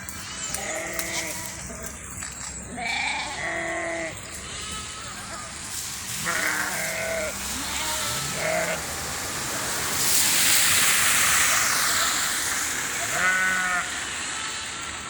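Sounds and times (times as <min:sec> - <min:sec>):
sheep bleating: 0:00.1 - 0:02.0, 0:02.7 - 0:05.2, 0:06.2 - 0:08.8, 0:13.0 - 0:13.9
loud hissing rush: 0:03.3 - 0:15.0
steady rain: 0:05.4 - 0:15.0.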